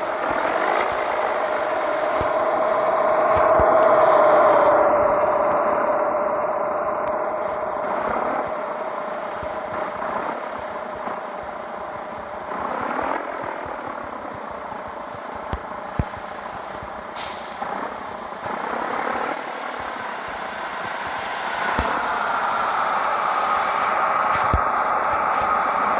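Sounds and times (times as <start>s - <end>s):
engine whine: 0.0s - 25.9s
truck diesel engine running: 0.0s - 25.9s
short sharp hiss: 17.2s - 18.1s.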